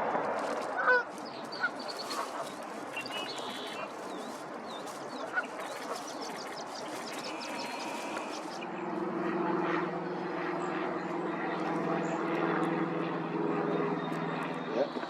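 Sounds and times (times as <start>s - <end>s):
low engine drone: 0.0s - 15.0s
outdoor background noise: 0.0s - 15.0s
small birds chirping: 0.5s - 9.0s.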